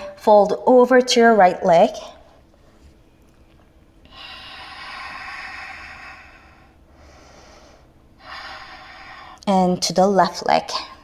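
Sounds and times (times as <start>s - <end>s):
person breathing close to microphone: 4.1s - 9.5s.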